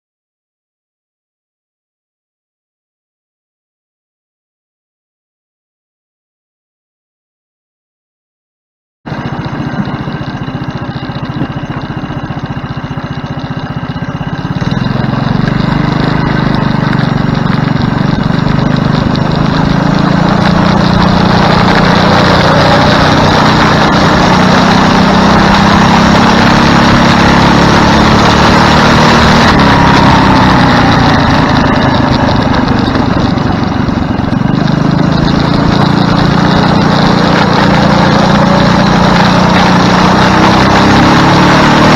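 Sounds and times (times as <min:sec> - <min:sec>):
go-kart engine running: 0:09.1 - 0:41.9.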